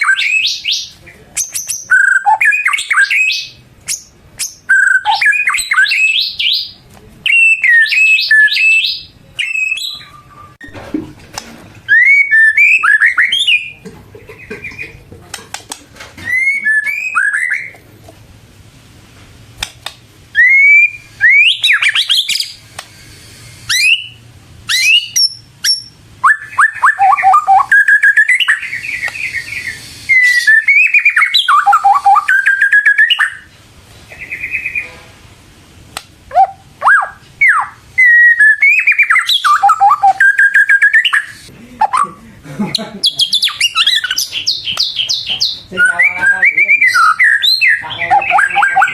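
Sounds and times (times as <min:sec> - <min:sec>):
songbird whistles and trills: 0:00.0 - 0:10.6, 0:11.9 - 0:13.8, 0:16.2 - 0:17.8, 0:20.3 - 0:33.5, 0:36.3 - 0:42.1, 0:43.0 - 0:48.9.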